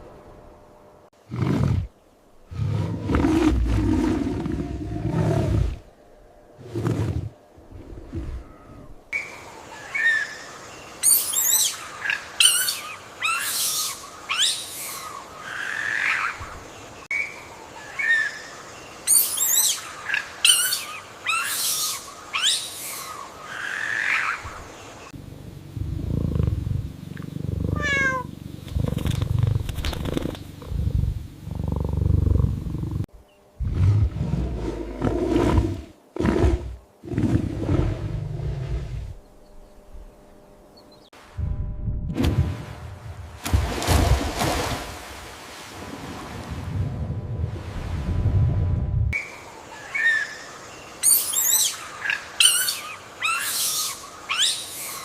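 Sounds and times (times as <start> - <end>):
low rumbling growl: 25.2 - 39.2
high-pitched animal calls: 27.6 - 28.3.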